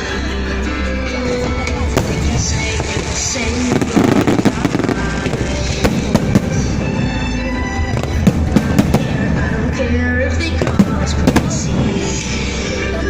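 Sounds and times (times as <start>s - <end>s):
music: 0.0s - 13.0s
fireworks bangs and crackles: 1.6s - 7.2s, 7.8s - 9.7s, 10.5s - 12.3s.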